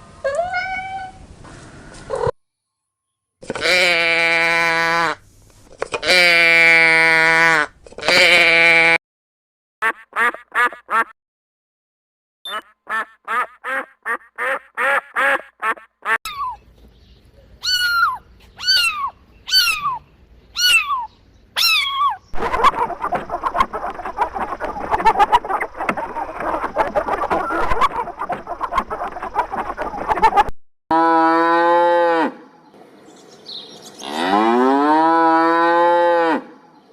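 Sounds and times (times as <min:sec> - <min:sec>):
flock of birds calling: 0:20.6 - 0:30.4
ducks quacking: 0:21.8 - 0:30.5.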